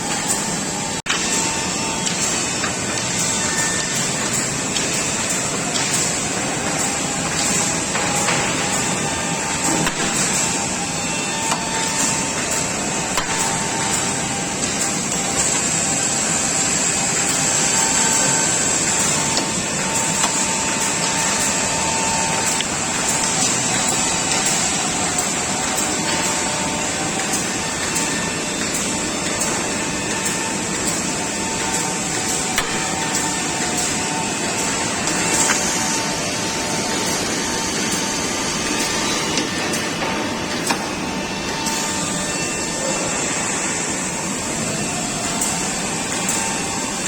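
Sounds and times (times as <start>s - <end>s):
boring machine whirring: 0.0s - 47.0s
thin machine whine: 0.0s - 47.0s.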